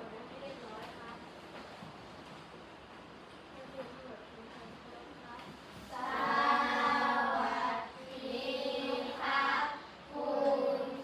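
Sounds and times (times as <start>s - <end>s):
children singing in unison: 5.9s - 11.0s.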